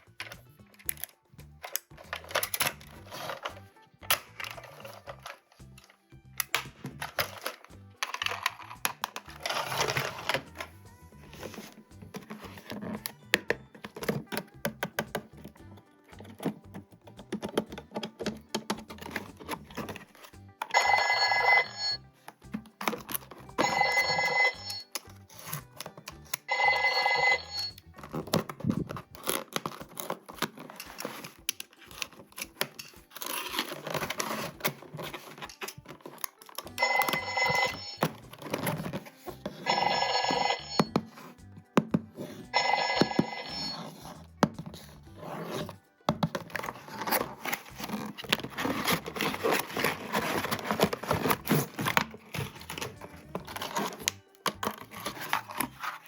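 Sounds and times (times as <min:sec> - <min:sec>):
plastic handling clicks: 0:00.1 - 0:10.7, 0:11.4 - 0:15.6, 0:16.2 - 0:20.8, 0:22.3 - 0:23.7, 0:27.7 - 0:39.6
electronic telephone ringing: 0:20.7 - 0:22.0, 0:23.6 - 0:24.9, 0:26.5 - 0:27.8, 0:36.7 - 0:38.1, 0:39.6 - 0:41.0, 0:42.5 - 0:43.8.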